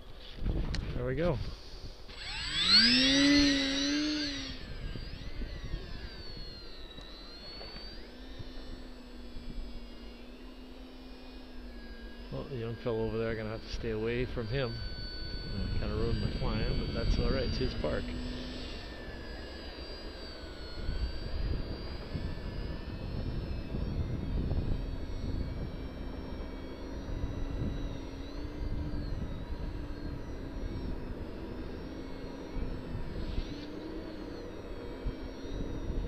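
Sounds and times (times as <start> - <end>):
model plane motor whining: 0.0 - 36.0
wind rumbling on microphone: 0.2 - 2.2, 3.3 - 7.4, 12.5 - 18.2, 20.7 - 36.0.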